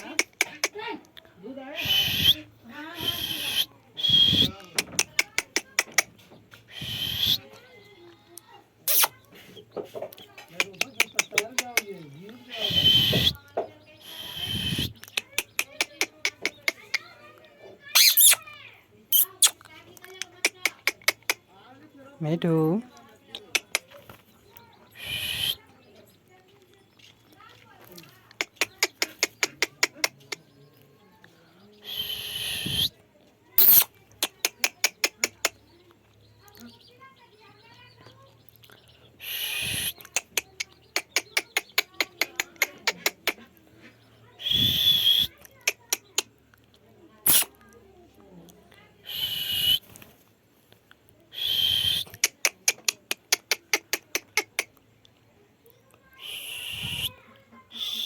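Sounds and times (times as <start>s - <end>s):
parrot calling and screeching: 1.7s - 5.1s, 6.7s - 7.5s, 8.9s - 9.2s, 12.4s - 13.4s, 17.9s - 18.5s, 19.1s - 19.6s, 24.9s - 25.6s, 31.8s - 32.9s, 33.6s - 33.9s, 39.2s - 40.3s, 47.2s - 47.5s
parrot screeching: 1.8s - 4.5s, 17.9s - 18.5s, 47.3s - 47.5s.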